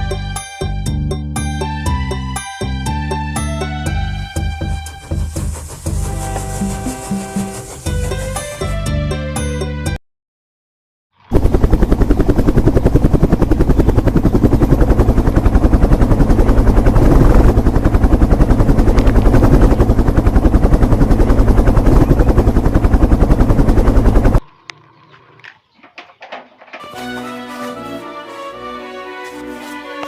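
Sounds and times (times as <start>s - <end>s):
music: 0.0s - 10.0s, 26.8s - 30.0s
helicopter rotor chopping: 4.7s - 8.5s, 11.3s - 24.4s.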